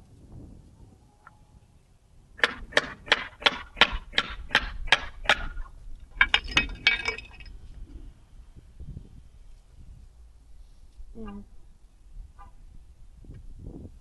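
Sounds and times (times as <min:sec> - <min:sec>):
metal clinking on metal: 0:06.1 - 0:07.6.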